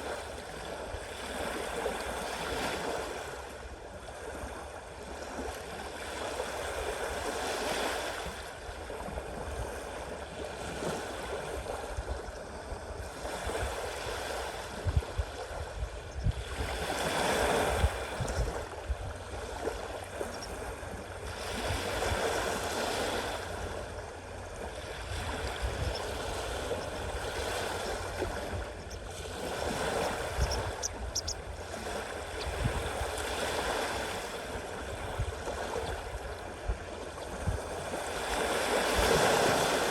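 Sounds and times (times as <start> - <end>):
sea waves washing onto shore: 13.0 - 39.9.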